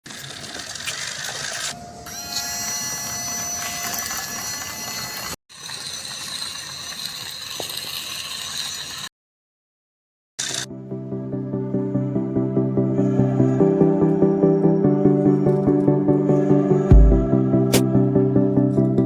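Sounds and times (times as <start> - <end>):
geared mechanism whirring: 0.1 - 9.1, 10.4 - 10.7.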